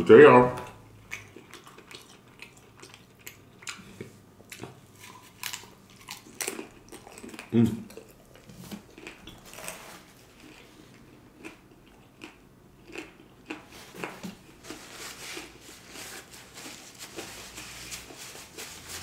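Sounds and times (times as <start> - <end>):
man chewing food: 0.6 - 19.0.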